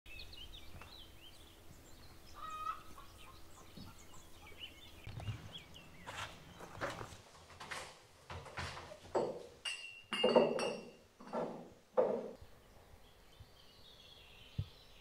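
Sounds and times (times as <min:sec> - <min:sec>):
birds chirping: 0:00.1 - 0:07.3, 0:12.0 - 0:15.0.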